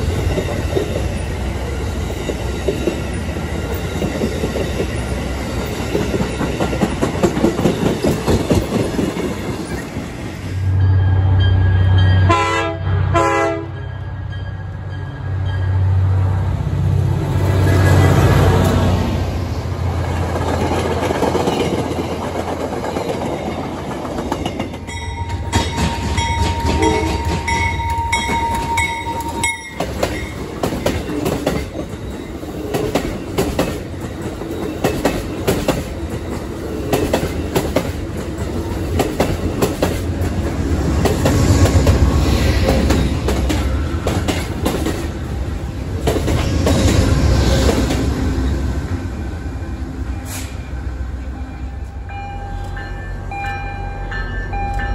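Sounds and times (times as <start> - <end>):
passing train rumble: 0.0 - 54.9
wheels clicking over rail joints: 3.6 - 10.2, 20.1 - 41.8.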